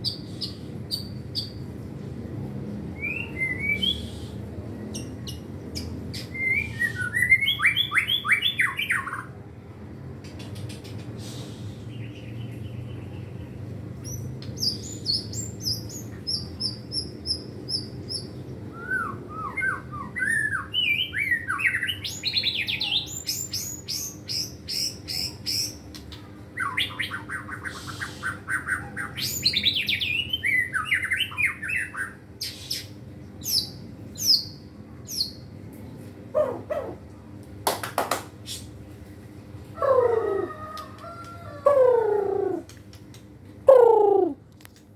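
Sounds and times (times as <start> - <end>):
bird singing whistled phrases: 3.0 - 4.2, 6.3 - 9.1, 18.7 - 24.4.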